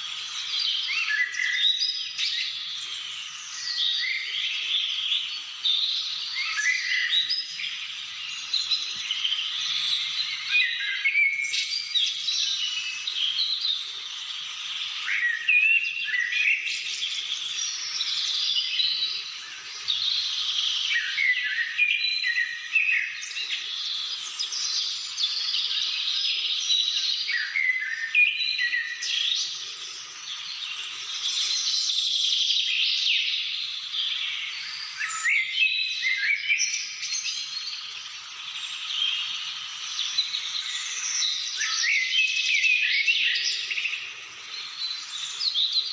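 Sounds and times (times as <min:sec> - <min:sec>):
birds singing and calling: 0:00.0 - 0:45.9.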